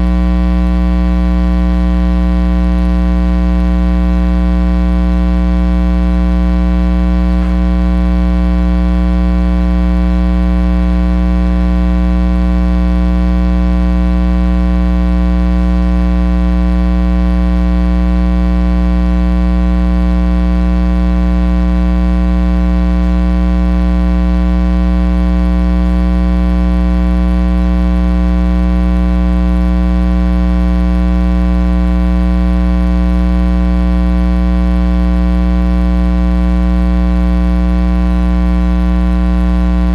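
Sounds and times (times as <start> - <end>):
electrical mains hum: 5.9 - 9.8.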